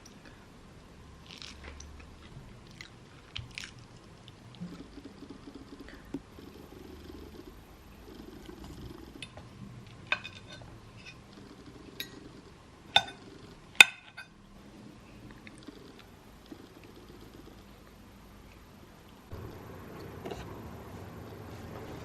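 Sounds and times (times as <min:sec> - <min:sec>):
faint low background hum: 0:00.0 - 0:22.0
tableware clinking: 0:10.1 - 0:11.2, 0:12.0 - 0:12.2, 0:13.0 - 0:13.2, 0:13.8 - 0:14.4.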